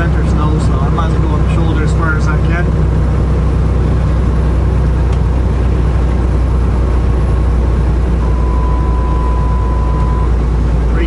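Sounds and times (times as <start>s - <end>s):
diesel engine drone: 0.0s - 11.0s
road and tyre noise: 0.0s - 11.0s
steady high tone: 8.2s - 10.4s.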